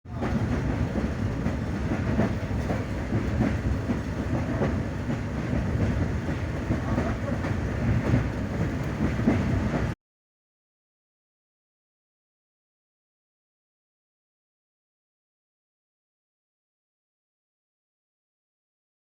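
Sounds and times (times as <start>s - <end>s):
train rumbling: 0.1s - 10.0s
wheels clattering on rails: 0.1s - 10.0s.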